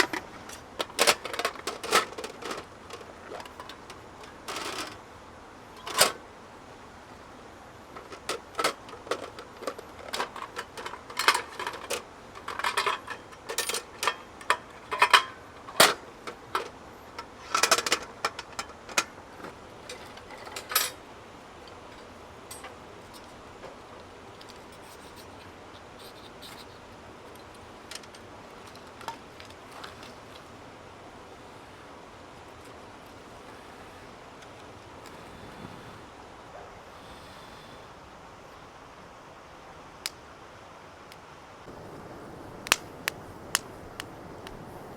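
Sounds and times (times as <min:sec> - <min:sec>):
camping gear clinking and knocking: 0:00.0 - 0:05.1, 0:07.9 - 0:21.0.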